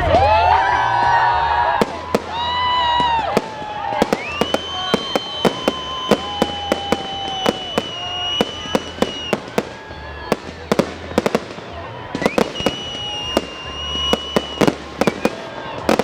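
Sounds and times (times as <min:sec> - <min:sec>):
fireworks bangs: 0:00.0 - 0:16.0
fireworks whistling: 0:00.0 - 0:16.0.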